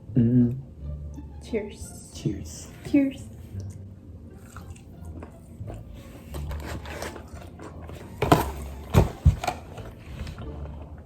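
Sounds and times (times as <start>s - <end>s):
chewing crispy fried chicken: 3.5s - 6.5s.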